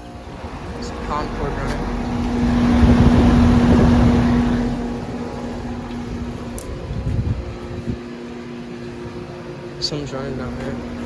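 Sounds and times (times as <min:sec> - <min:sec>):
compressor hum: 0:00.0 - 0:11.0
condenser fan rushing: 0:00.0 - 0:11.0.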